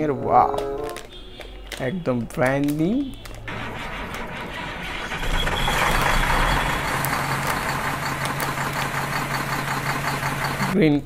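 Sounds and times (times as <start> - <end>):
engine running with low hum: 3.5 - 10.8.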